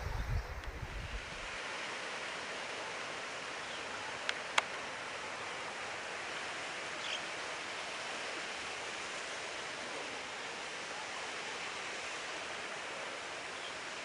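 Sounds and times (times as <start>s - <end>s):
rushing outdoor background noise: 0.0s - 14.0s.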